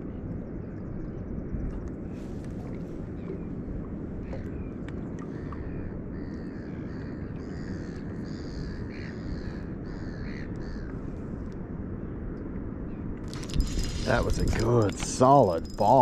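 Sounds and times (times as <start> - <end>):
steady low rumble: 8.3 - 16.0.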